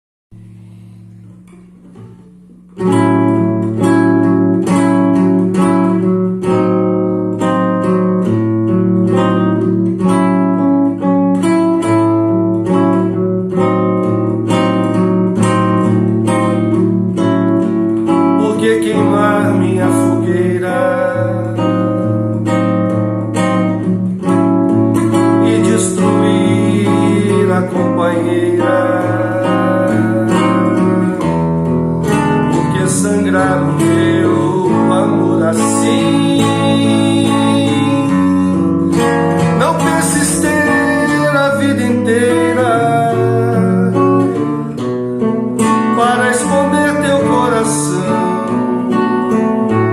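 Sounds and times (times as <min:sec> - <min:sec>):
acoustic guitar strumming: 0:00.3 - 0:49.9.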